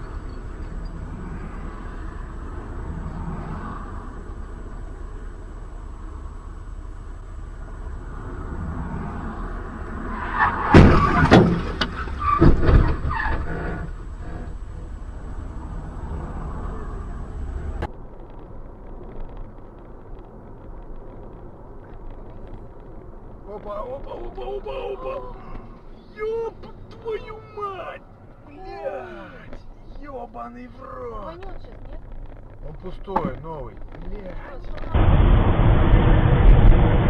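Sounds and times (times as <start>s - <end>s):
car road and engine noise: 0.0s - 37.0s
collision bangs and crunches: 10.5s - 13.5s.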